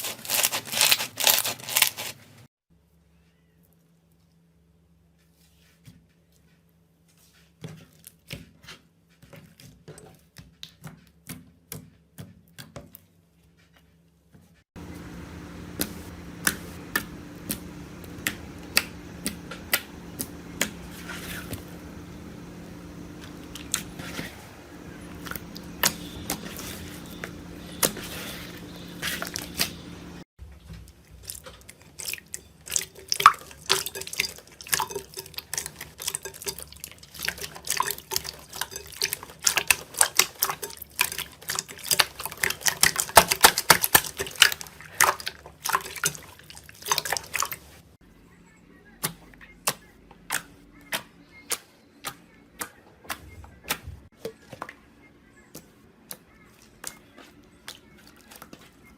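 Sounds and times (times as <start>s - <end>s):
low steady hum: 14.8s - 52.5s.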